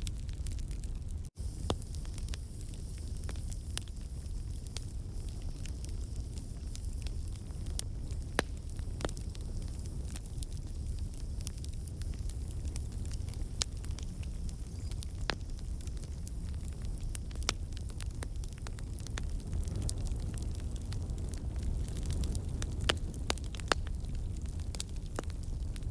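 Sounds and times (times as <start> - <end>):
campfire flame rumbling: 0.0 - 25.9
logs crackling and popping: 0.0 - 25.9.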